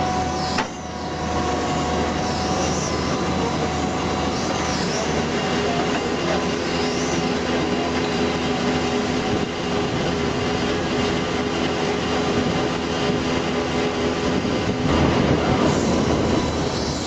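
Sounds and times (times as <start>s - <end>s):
heavy machinery rumble: 0.0s - 17.0s.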